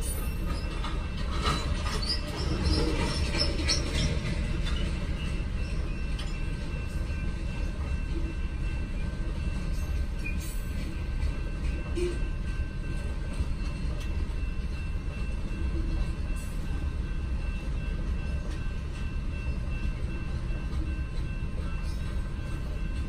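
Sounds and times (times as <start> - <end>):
wheel and rail clicks: 0.0 - 8.3
freight train rumbling: 0.0 - 23.0.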